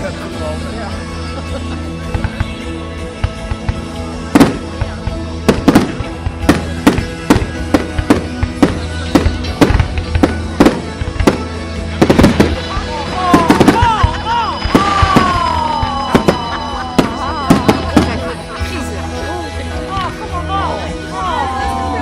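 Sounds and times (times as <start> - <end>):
music playing: 0.0 - 22.0
fireworks bangs: 3.2 - 18.4.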